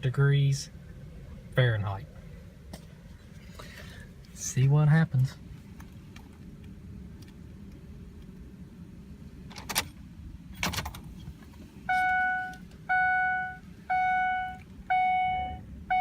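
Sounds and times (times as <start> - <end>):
dashboard warning chime: 11.9 - 16.0.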